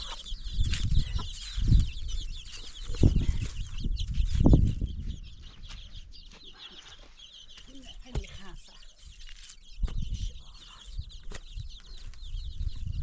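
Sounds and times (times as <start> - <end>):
chicks chirping: 0.0 - 13.0
dull low thumps: 0.1 - 6.3, 9.8 - 13.0.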